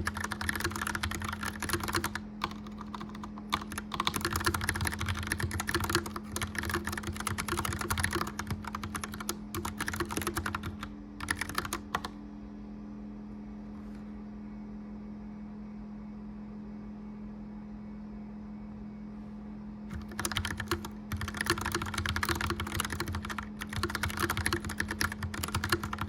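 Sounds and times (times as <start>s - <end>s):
clicky mechanical keyboard typing: 0.0s - 12.2s, 19.9s - 26.0s
fireplace fan humming: 0.0s - 26.0s.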